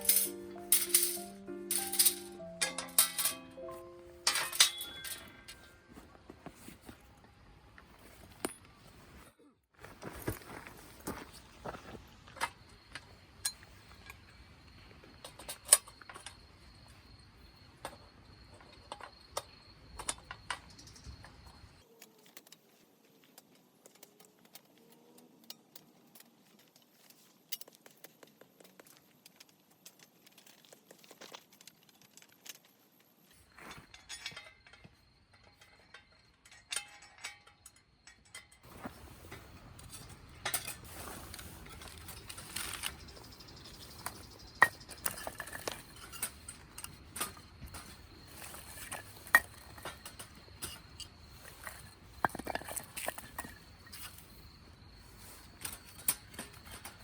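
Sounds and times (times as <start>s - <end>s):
small hard objects clinking: 0.0s - 5.9s, 33.5s - 54.4s.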